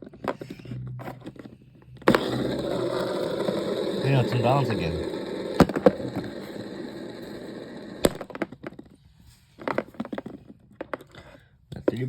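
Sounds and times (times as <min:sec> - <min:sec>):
ceiling fan whirring: 0:02.1 - 0:08.2.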